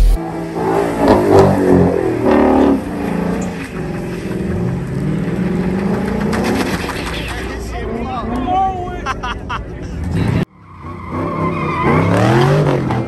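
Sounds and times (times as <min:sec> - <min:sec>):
car engine revving hard: 0:00.2 - 0:06.8, 0:11.1 - 0:13.0.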